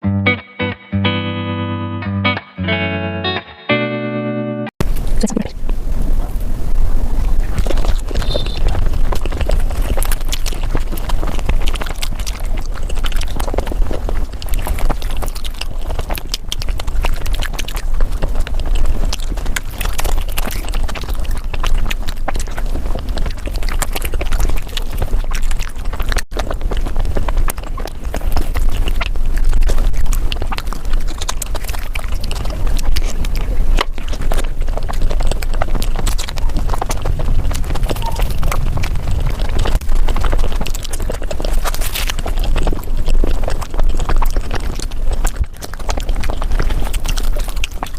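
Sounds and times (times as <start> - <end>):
person chewing and smacking: 7.0 - 47.9.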